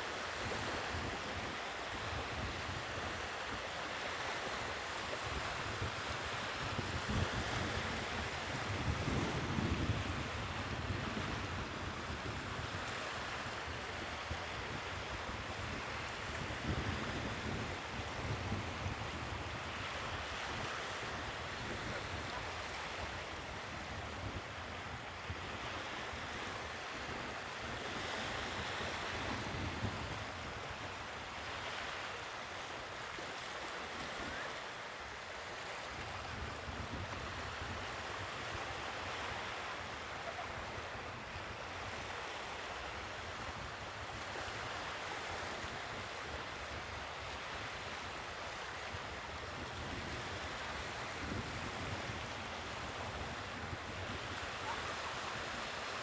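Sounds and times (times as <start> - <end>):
sea waves breaking on shore: 0.0 - 56.0
wind buffeting microphone: 5.3 - 12.8, 49.6 - 55.7.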